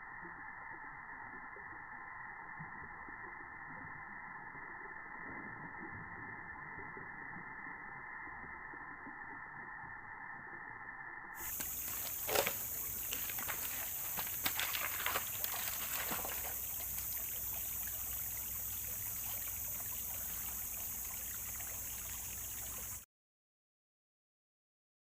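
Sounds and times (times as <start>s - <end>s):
flowing river water: 11.4s - 23.0s.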